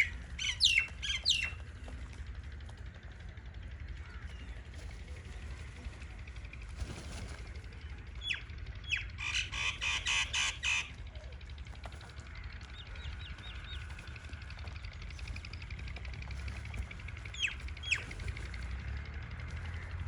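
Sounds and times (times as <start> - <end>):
birds squawking: 0.0 - 1.8, 8.2 - 11.6, 17.2 - 18.5.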